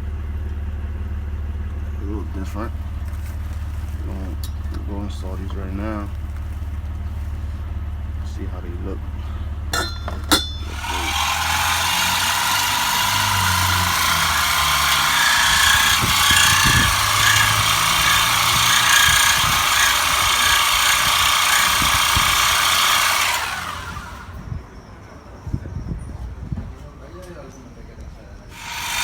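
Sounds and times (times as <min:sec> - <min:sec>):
power tool running: 0:09.8 - 0:24.4, 0:28.5 - 0:29.0.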